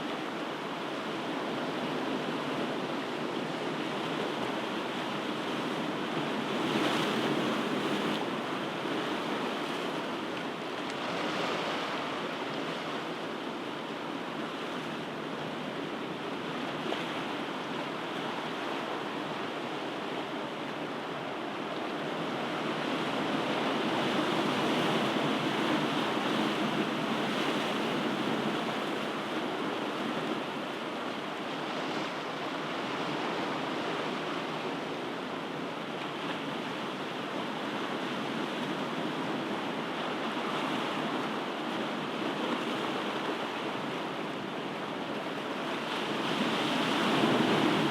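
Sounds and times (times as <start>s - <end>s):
waves breaking: 6.4s - 13.6s, 22.4s - 47.9s.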